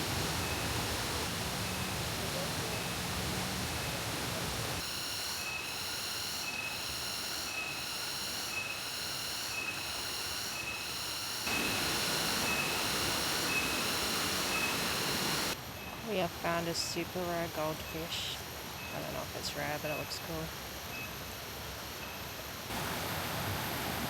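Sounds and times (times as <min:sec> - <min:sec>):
insect pulsing call: 0:04.8 - 0:22.7
waterfall rushing: 0:11.5 - 0:15.6.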